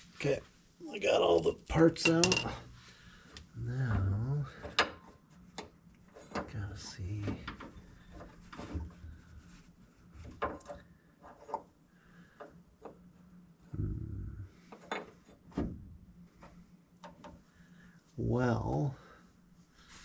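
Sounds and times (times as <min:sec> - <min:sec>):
metal parts and tools clinking: 0:01.4 - 0:02.6.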